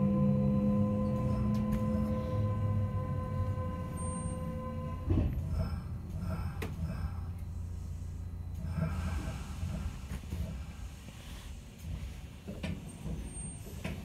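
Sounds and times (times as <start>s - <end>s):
steady tone: 0.0s - 9.6s
train interior rumble: 0.0s - 14.0s.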